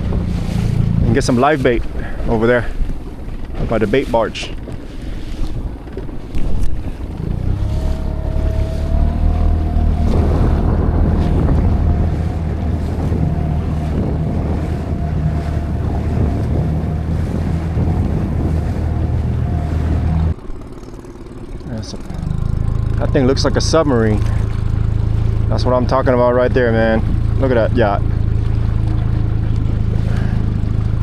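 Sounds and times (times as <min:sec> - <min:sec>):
wind buffeting microphone: 0:00.0 - 0:20.7
outboard motor humming: 0:00.0 - 0:31.0.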